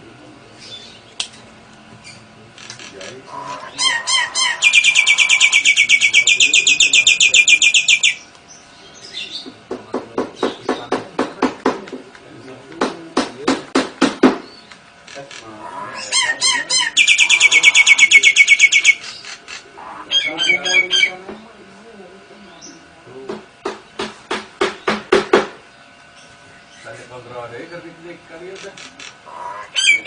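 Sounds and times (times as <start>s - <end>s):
songbird fast high trill: 16.0s - 19.2s.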